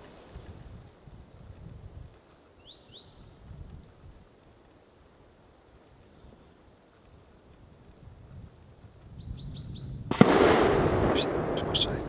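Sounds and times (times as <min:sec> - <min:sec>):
wind rumble on microphone: 0:00.0 - 0:02.3, 0:02.9 - 0:04.4, 0:05.7 - 0:12.0
bird chirps: 0:02.4 - 0:05.6, 0:09.2 - 0:10.1.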